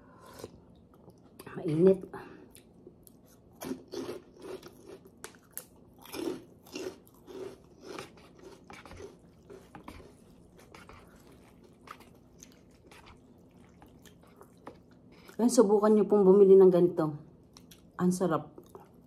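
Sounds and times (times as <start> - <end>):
person chewing food: 2.4 - 15.4, 17.4 - 18.0, 18.6 - 19.0.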